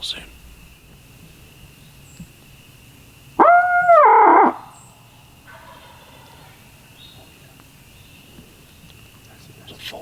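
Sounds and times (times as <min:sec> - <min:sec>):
turkey locator call: 0:03.4 - 0:04.7.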